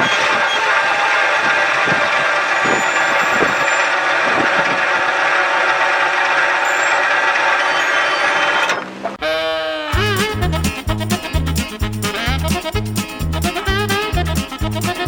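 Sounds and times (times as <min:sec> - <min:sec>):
wheels clicking over rail joints: 0:00.0 - 0:09.2
freight train rumbling past: 0:10.0 - 0:15.0.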